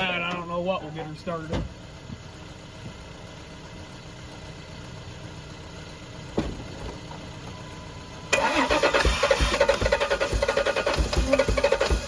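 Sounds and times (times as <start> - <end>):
engine cranking: 8.3 - 12.0.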